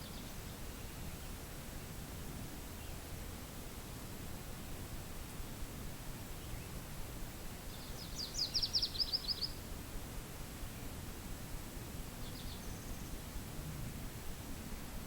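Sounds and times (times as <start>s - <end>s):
low rush of wind: 0.0s - 15.0s
songbird trilling: 7.7s - 9.6s.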